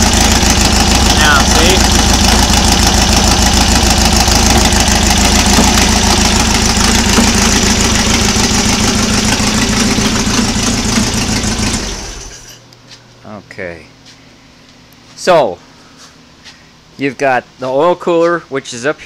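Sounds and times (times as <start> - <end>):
car engine idling: 0.0 - 12.5.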